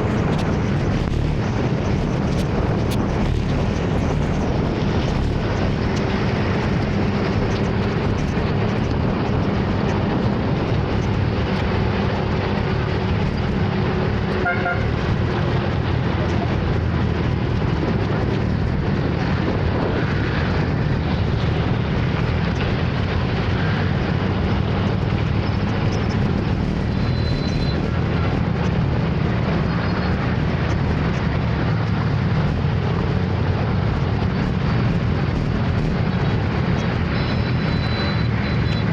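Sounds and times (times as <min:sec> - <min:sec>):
wind rushing: 0:00.0 - 0:14.3
horn beep: 0:37.1 - 0:38.9.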